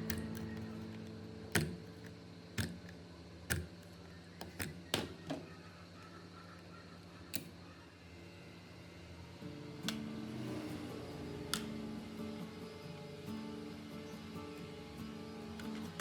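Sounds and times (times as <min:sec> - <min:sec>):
small hard parts clicking: 0:00.0 - 0:05.4, 0:07.3 - 0:07.6.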